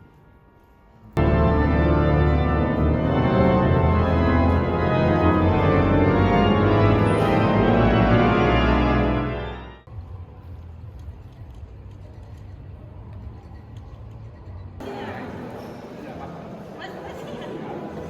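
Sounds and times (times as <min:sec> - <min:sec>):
organ playing sustained chords: 0:01.2 - 0:09.9.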